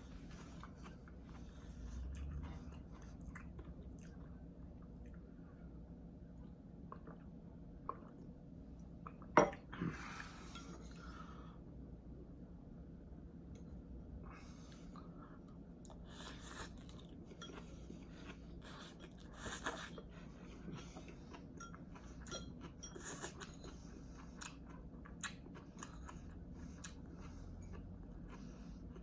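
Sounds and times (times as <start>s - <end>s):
person chewing and slurping noodles: 0.0s - 5.4s, 14.3s - 29.0s.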